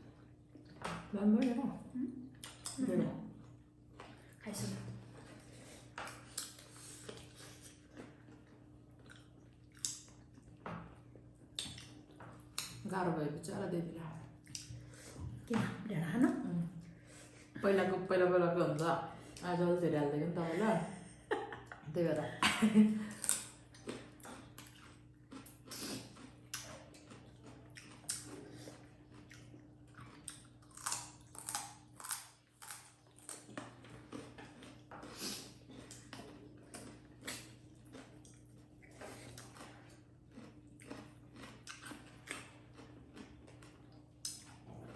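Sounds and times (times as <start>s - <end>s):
person chewing food: 2.3s - 2.8s, 5.0s - 12.8s, 14.3s - 15.4s, 23.1s - 44.9s.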